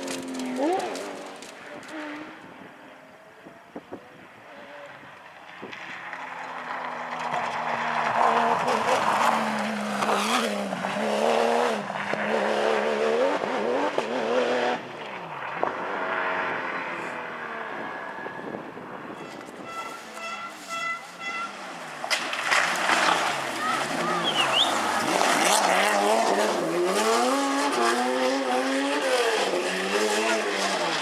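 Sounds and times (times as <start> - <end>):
rally car engine at full throttle: 0.0 - 31.0
car pulling away: 4.7 - 19.6, 21.6 - 31.0.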